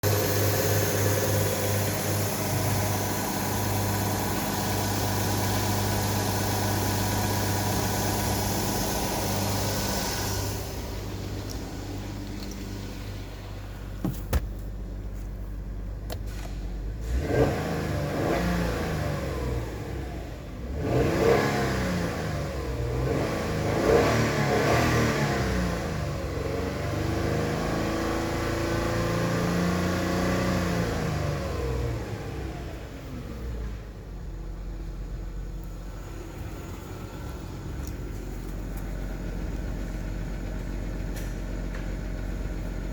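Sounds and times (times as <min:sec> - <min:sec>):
car engine revving: 0:17.0 - 0:32.6.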